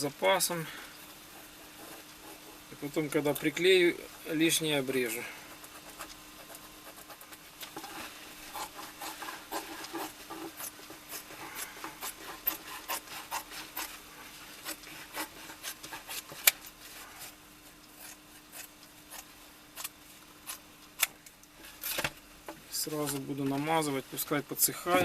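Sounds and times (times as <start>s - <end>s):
blade scraping insole material: 5.6s - 20.6s.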